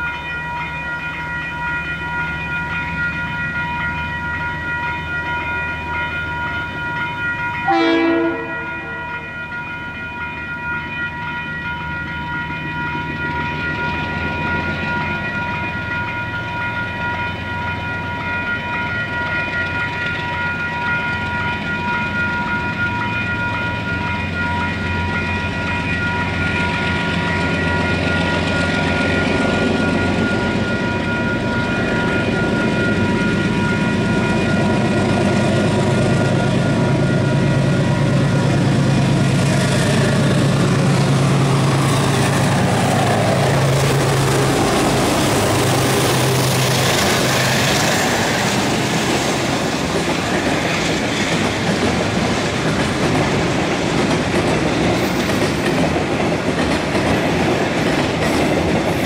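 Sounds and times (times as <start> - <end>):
high ringing tone: 0.0 - 50.4
diesel locomotive engines: 0.0 - 59.0.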